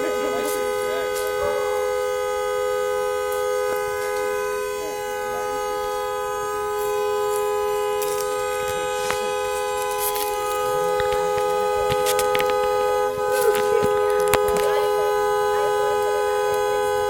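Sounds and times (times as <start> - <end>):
truck horn blaring: 0.0 - 17.0.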